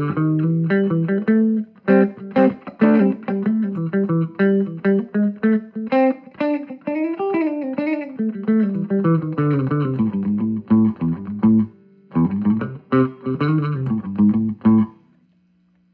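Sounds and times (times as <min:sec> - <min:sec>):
electric guitar with string bends: 0:00.0 - 0:15.2.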